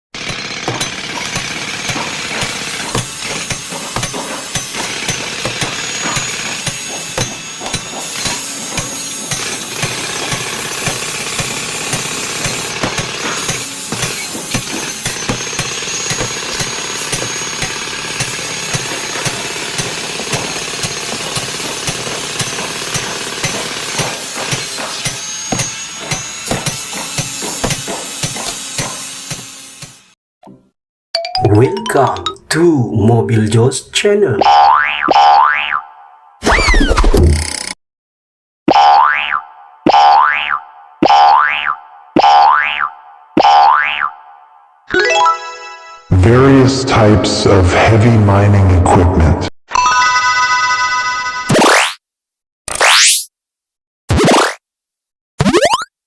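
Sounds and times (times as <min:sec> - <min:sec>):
heavy machinery running: 0:00.2 - 0:28.1
sharp hammering knocks: 0:00.2 - 0:30.6.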